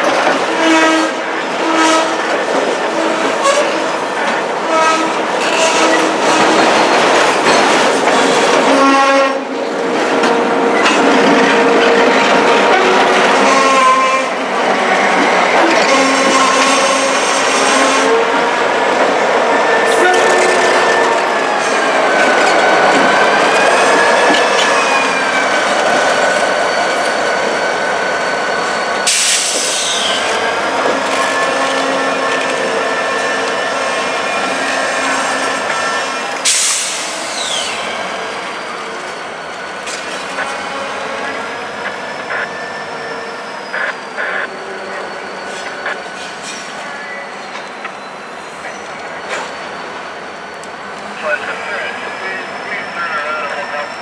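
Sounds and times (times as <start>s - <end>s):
freight train rolling on rails: 0.0s - 54.0s
high-pitched wheel squeal: 36.9s - 50.4s.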